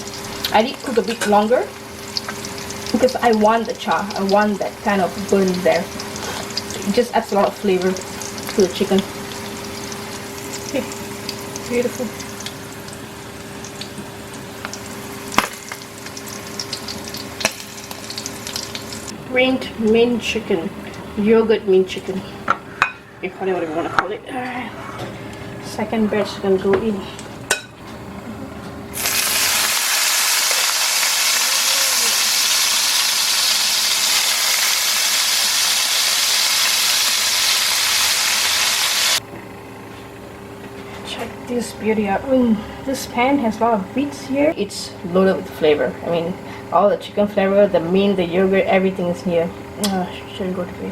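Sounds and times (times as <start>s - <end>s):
chicken sizzling in oil: 0.0s - 19.1s, 29.0s - 39.2s.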